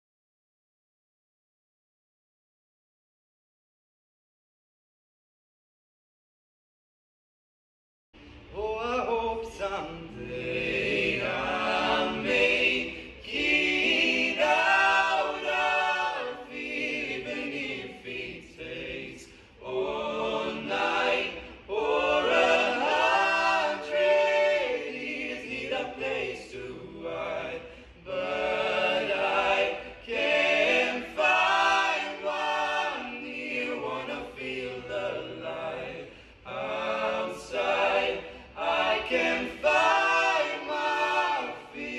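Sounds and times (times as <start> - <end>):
choir singing a cappella: 8.4 - 41.9.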